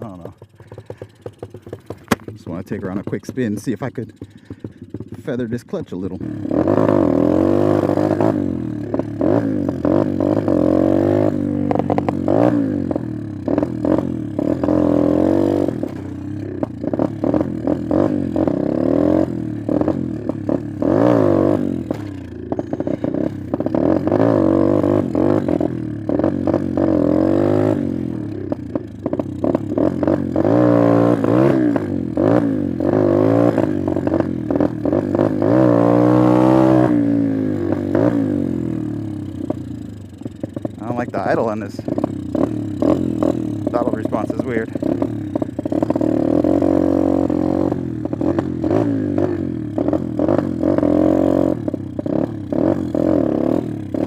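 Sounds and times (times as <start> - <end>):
intermittent clatter: 0.0 - 10.6, 11.2 - 21.1, 21.8 - 27.0, 39.3 - 46.8
pit bike engine revving: 0.0 - 54.0.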